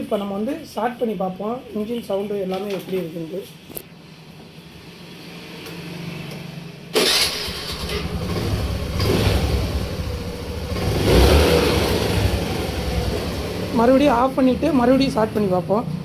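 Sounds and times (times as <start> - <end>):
scooter engine starting and revving: 6.9 - 15.2.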